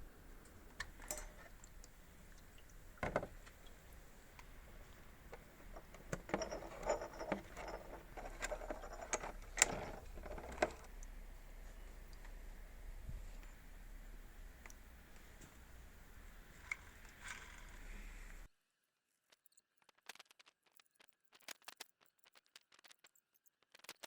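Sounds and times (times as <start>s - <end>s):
small parts rattling and knocking: 0.8s - 1.6s, 4.4s - 11.0s, 19.2s - 24.0s.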